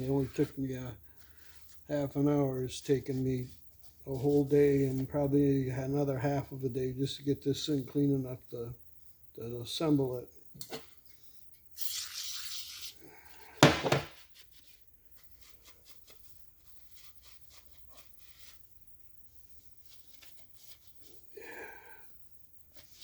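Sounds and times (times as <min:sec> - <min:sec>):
faint rubbing: 0:00.0 - 0:06.9, 0:14.1 - 0:21.8
loud sharp knock: 0:13.6 - 0:14.1.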